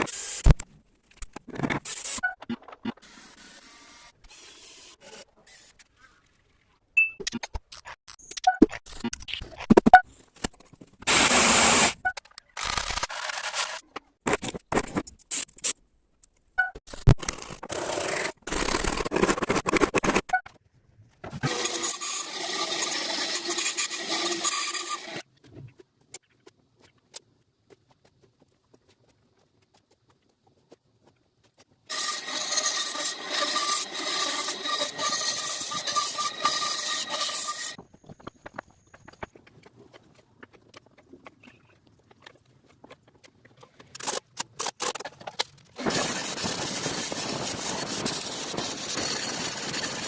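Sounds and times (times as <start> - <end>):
scraping and rubbing wood: 31.9 - 50.0.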